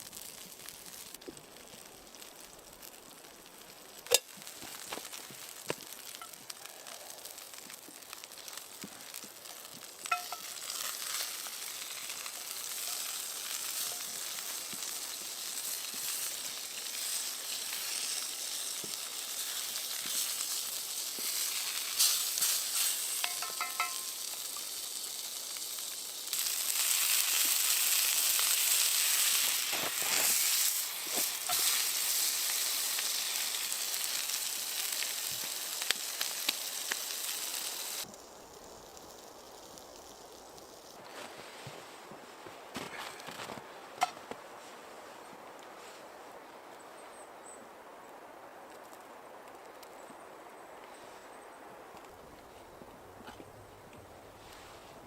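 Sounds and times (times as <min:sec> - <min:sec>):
food sizzling in frying pan: 0:00.0 - 0:41.0.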